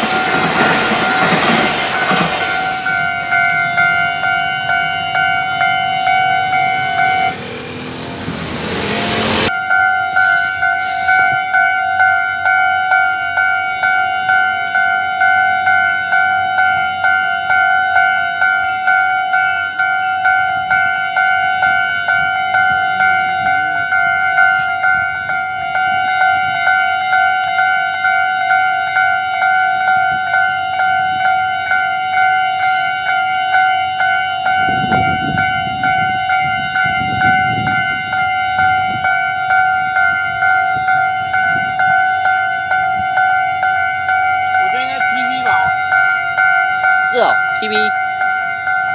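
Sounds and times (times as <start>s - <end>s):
level crossing bell ringing: 0.0s - 7.7s, 9.4s - 48.9s
low rumble: 0.1s - 9.5s.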